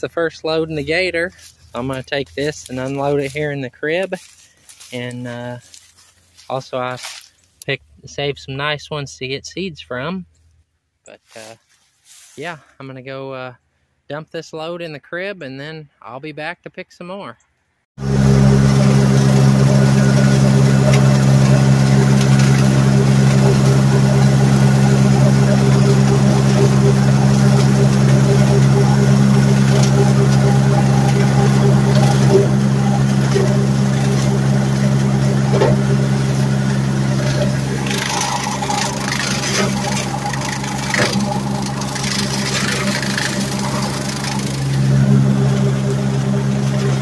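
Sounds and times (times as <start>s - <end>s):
utility vehicle engine droning: 0.0s - 10.6s, 18.0s - 47.0s
rattling and clatter: 18.6s - 45.2s.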